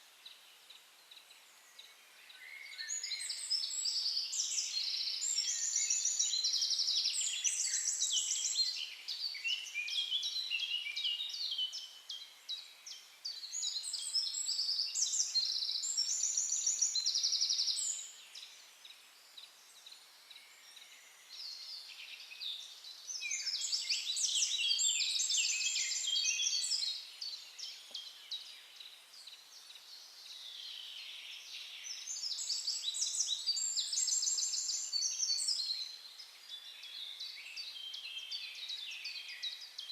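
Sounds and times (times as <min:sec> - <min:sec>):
songbird chirping and trilling: 0:00.2 - 0:39.9.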